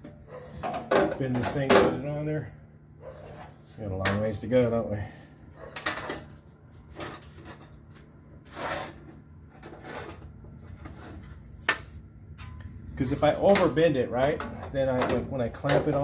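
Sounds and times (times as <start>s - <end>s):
steady low hum: 0.0s - 16.0s
sheet metal scraping rustles: 3.1s - 4.0s, 5.7s - 11.5s.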